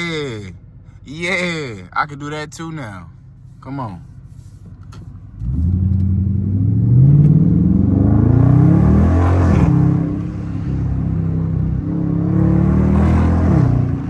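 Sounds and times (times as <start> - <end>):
car engine accelerating hard: 5.3 - 14.0.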